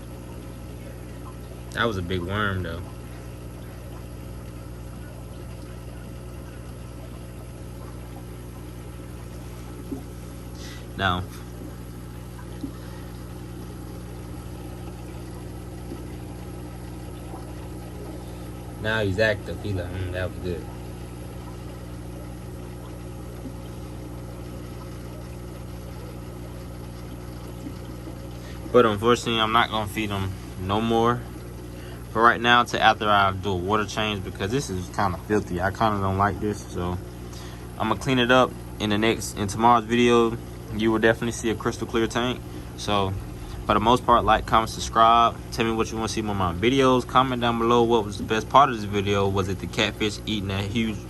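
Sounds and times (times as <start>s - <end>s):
low pump hum: 0.0s - 51.0s
water pouring and trickling: 0.0s - 51.0s.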